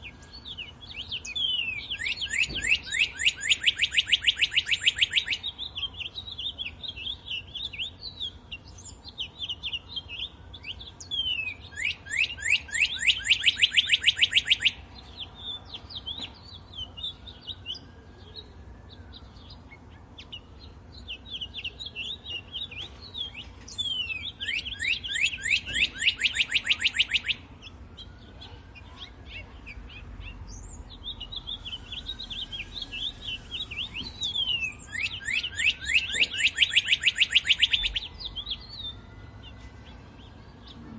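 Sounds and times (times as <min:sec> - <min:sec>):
bird rapid trill: 0:00.0 - 0:10.4, 0:21.1 - 0:27.4, 0:28.0 - 0:39.0
soft bird chirps and calls: 0:00.0 - 0:40.9.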